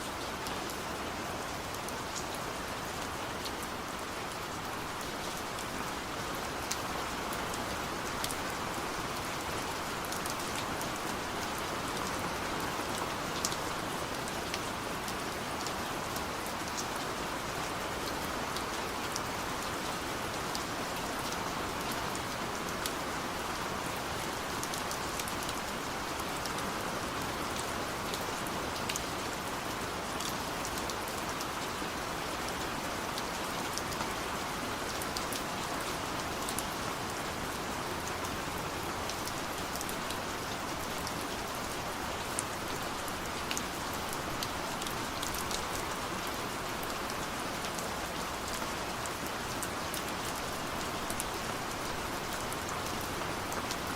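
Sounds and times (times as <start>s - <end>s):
steady rain falling: 0.0s - 53.9s
raindrops ticking on surfaces: 0.1s - 53.9s.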